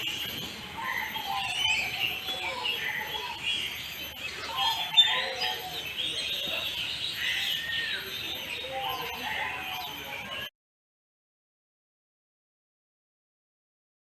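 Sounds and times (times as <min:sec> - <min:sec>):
many birds chirping: 0:00.0 - 0:10.5.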